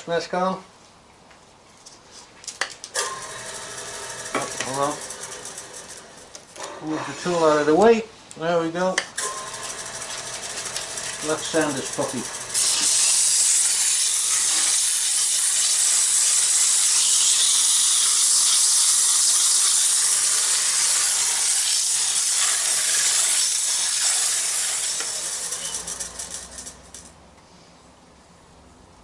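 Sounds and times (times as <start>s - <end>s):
sandpaper hissing on spinning wood: 10.1s - 26.4s.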